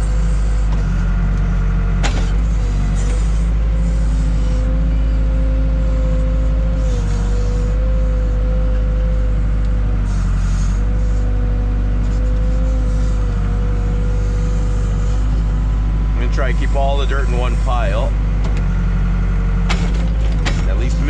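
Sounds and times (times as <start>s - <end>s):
diesel engine rumble: 0.0s - 21.0s
steady whine: 12.0s - 21.0s.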